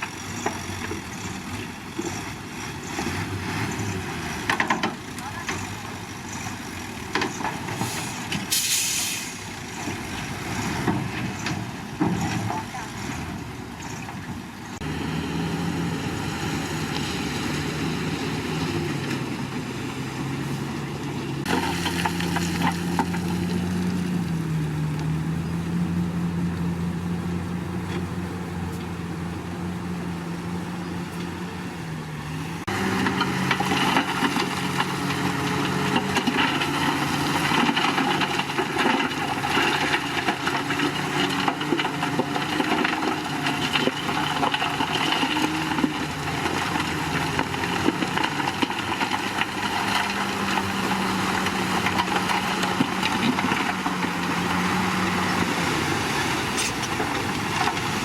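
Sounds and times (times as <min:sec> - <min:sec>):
heavy diesel engine running: 0:14.3 - 0:58.0.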